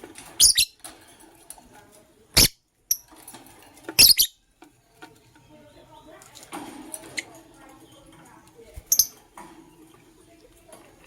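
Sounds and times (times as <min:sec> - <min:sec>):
lovebirds shrill chirps: 0:00.4 - 0:00.8, 0:04.0 - 0:04.4, 0:08.9 - 0:09.2.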